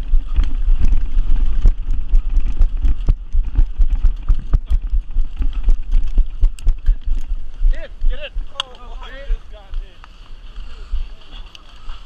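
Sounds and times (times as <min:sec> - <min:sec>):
gear rattling: 0:00.0 - 0:09.0
running footsteps: 0:00.0 - 0:12.0
wind buffeting microphone: 0:00.0 - 0:12.0.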